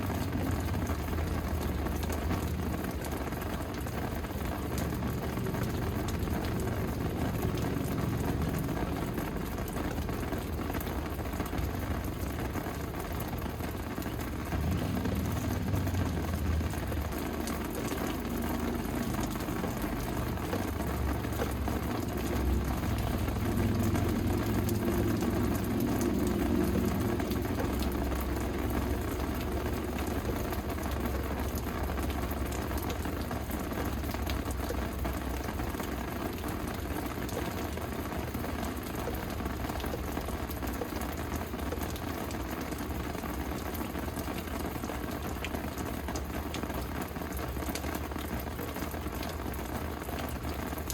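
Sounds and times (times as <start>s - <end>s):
steady rain falling: 0.0s - 50.9s
low rumble: 14.2s - 19.4s.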